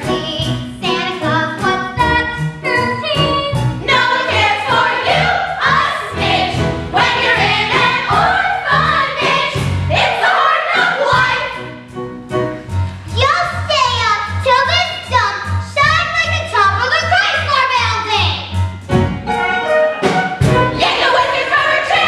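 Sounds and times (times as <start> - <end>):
instrumental accompaniment: 0.0 - 22.0
children singing: 0.8 - 11.7, 20.8 - 22.0.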